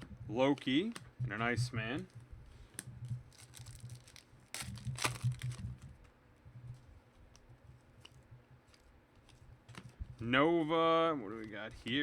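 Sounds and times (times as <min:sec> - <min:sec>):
low steady hum: 0:00.0 - 0:12.0
cards and wrappers crinkling: 0:03.1 - 0:05.9.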